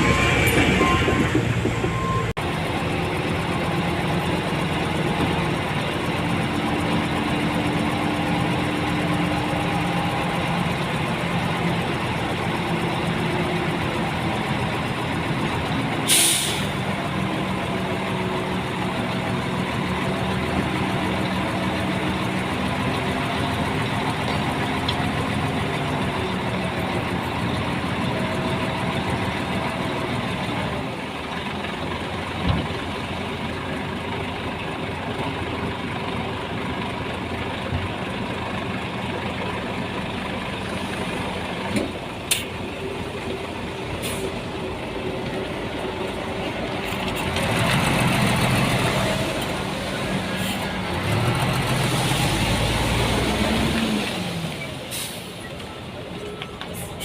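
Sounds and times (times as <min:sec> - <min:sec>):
heavy diesel machinery running: 0:00.0 - 0:57.0
sharp hiss of air: 0:16.1 - 0:16.7.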